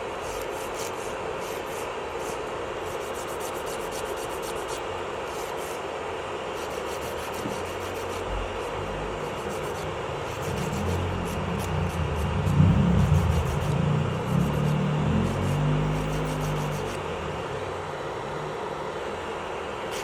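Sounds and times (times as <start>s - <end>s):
electric nail drill sanding: 0.2s - 5.8s, 6.6s - 17.0s
low rumble: 8.3s - 18.4s.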